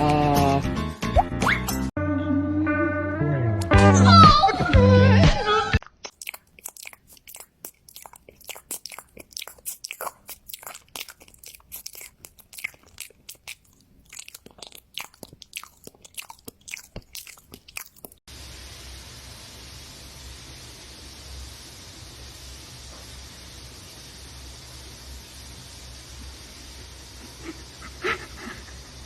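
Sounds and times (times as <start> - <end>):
animal chewing crunchy food: 6.0 - 18.2
steady hiss: 18.3 - 29.0.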